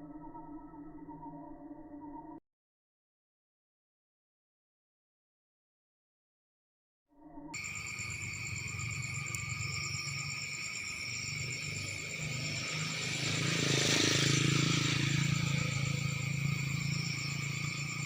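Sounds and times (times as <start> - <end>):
insects chirping: 7.5 - 18.0
low hum: 7.6 - 18.0
rushing noise: 7.6 - 18.0.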